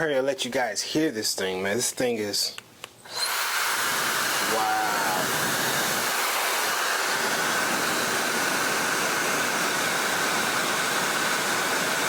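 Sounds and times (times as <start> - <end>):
hair dryer running: 3.0 - 12.0.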